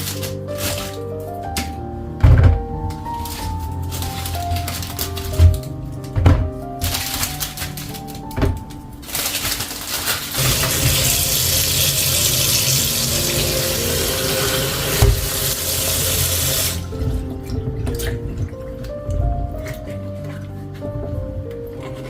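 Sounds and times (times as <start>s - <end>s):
soft background music: 0.0s - 22.0s
tap running water: 10.4s - 21.1s.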